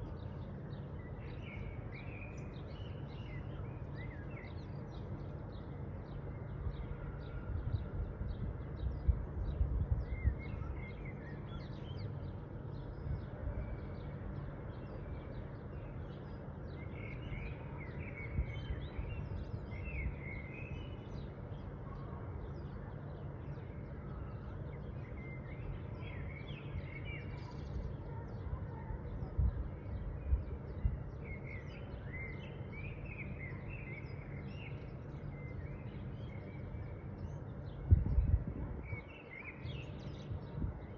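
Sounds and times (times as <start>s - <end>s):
small birds chirping: 0.0s - 6.6s, 8.5s - 40.9s
steady low rumble: 36.2s - 39.1s.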